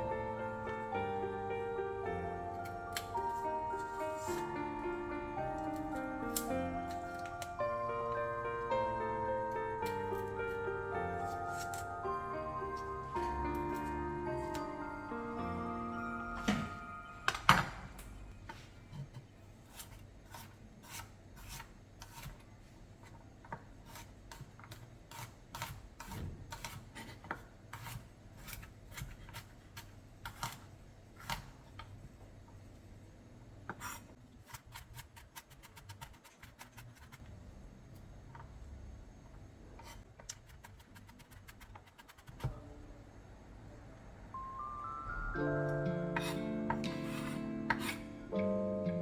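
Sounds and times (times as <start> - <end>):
knife scraping a cutting board: 18.8 - 22.4, 23.8 - 30.6, 46.2 - 48.2
knife cutting on a cutting board: 18.9 - 22.4, 23.5 - 30.6, 46.2 - 48.1.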